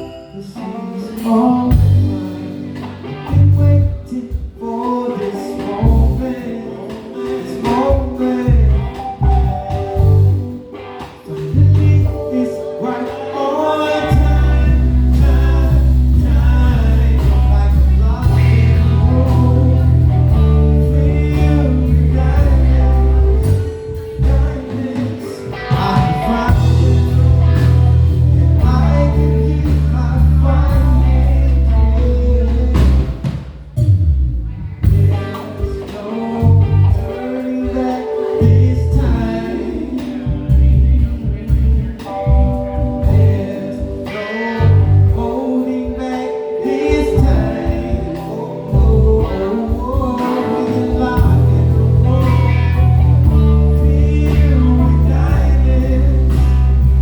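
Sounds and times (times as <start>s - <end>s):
live soul band playing: 0.0s - 57.0s
heavy sustained bass: 14.1s - 24.9s, 25.7s - 33.2s, 33.8s - 35.3s, 50.7s - 57.0s.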